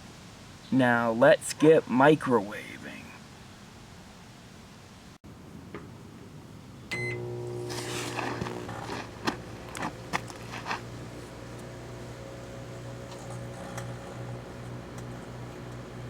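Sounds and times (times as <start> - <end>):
microwave beep: 6.9 - 8.9
microwave oven humming: 6.9 - 16.0.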